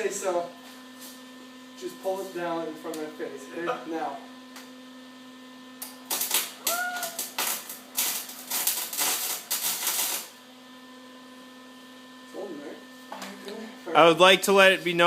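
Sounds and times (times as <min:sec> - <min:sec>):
arc welder crackling: 0:05.7 - 0:10.5.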